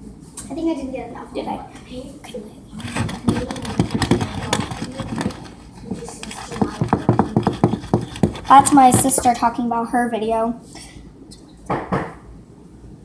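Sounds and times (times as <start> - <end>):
cake pans and utensils clicking: 2.8 - 9.4.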